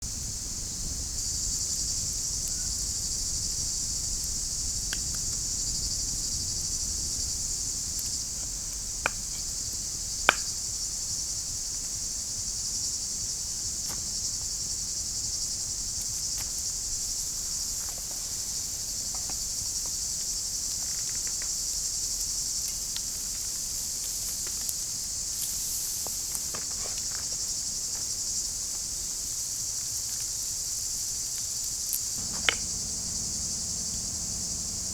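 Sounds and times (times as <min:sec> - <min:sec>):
crickets chirping: 0:00.1 - 0:22.9, 0:32.1 - 0:34.9
sharp knocks: 0:32.2 - 0:34.9.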